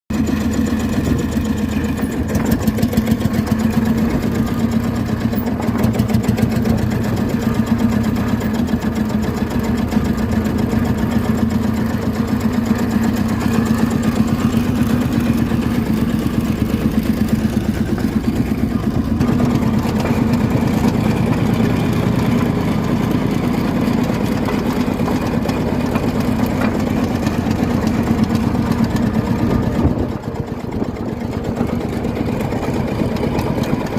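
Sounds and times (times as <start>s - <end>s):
tractor diesel engine idling: 0.1s - 33.9s.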